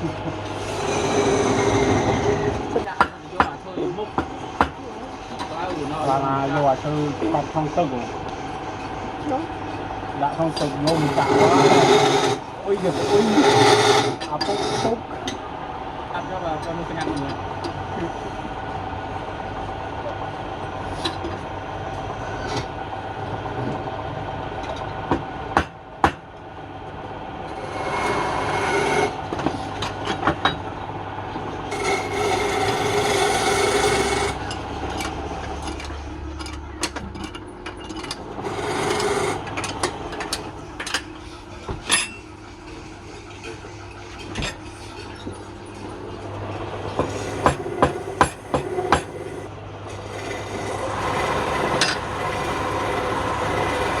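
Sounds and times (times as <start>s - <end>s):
wood lathe humming: 0.0s - 2.9s, 10.6s - 15.2s, 27.4s - 29.3s, 31.6s - 34.8s, 38.2s - 39.7s, 46.7s - 54.0s
turning tool rasping on wood: 0.5s - 2.9s, 10.6s - 15.0s, 27.5s - 29.2s, 31.7s - 34.5s, 38.3s - 39.5s, 46.9s - 54.0s.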